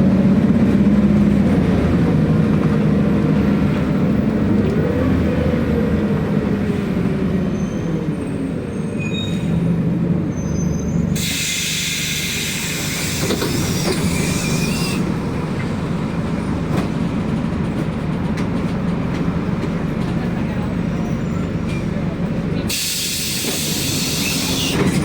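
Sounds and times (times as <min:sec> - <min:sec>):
bus engine and road noise: 0:00.0 - 0:25.0
compressed air hiss: 0:11.2 - 0:15.0, 0:22.7 - 0:24.8
faint high squeals: 0:13.0 - 0:15.0.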